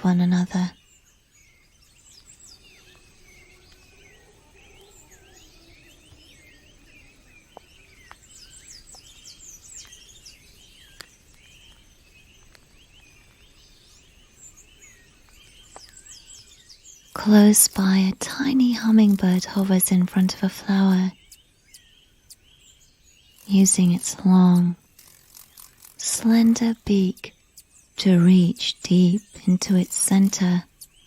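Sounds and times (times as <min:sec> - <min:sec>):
faint steady hiss: 0:00.0 - 0:31.0
small birds chirping: 0:00.0 - 0:31.0
sharp clicks: 0:17.2 - 0:20.7, 0:23.4 - 0:27.3, 0:28.0 - 0:30.6.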